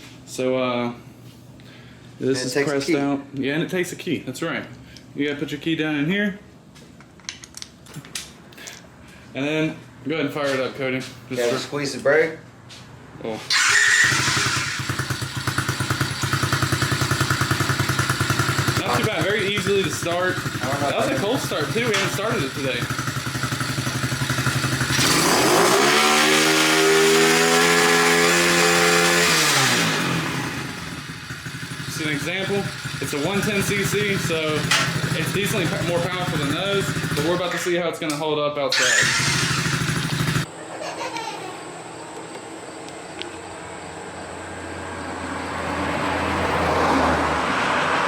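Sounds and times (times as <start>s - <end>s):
pit bike engine revving: 13.5s - 37.7s, 38.8s - 40.5s.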